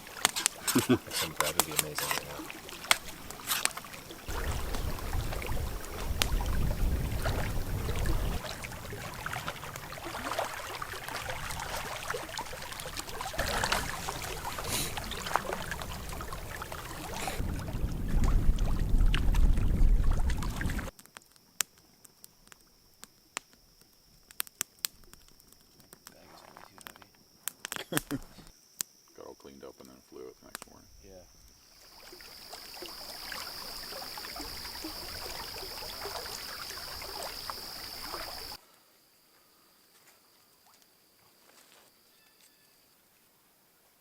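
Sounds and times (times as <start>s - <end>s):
water splashing and trickling: 0.0s - 20.9s, 31.6s - 38.6s
crickets chirping: 0.0s - 44.0s
wind buffeting microphone: 4.3s - 20.9s.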